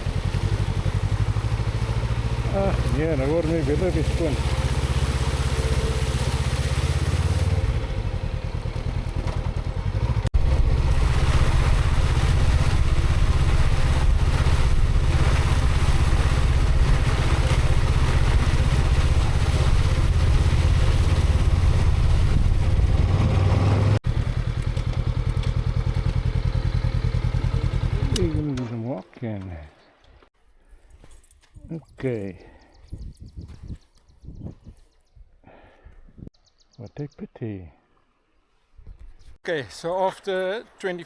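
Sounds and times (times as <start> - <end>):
motorcycle engine running: 0.0 - 28.6.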